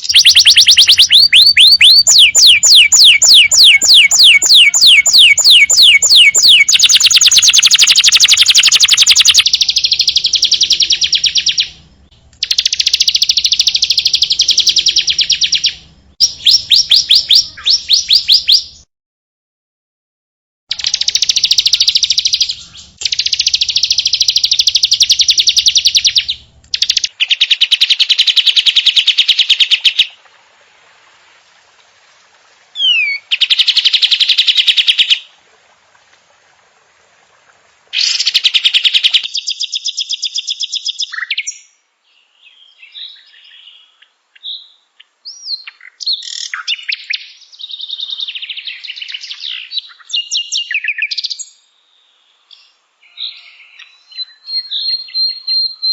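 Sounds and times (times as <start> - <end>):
bird whistles and chirps: 0.0 - 11.8, 12.4 - 18.9, 32.8 - 35.2, 53.1 - 55.9.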